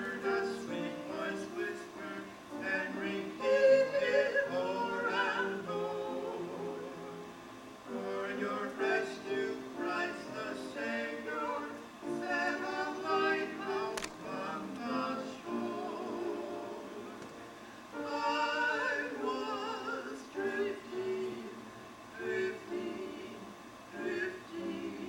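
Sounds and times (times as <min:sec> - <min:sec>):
voices singing a gospel hymn: 0:00.0 - 0:25.0
sharp click: 0:13.9 - 0:14.2.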